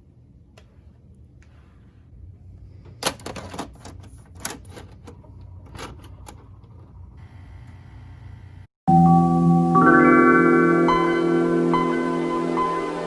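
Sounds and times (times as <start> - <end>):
low steady hum: 0.0 - 8.7.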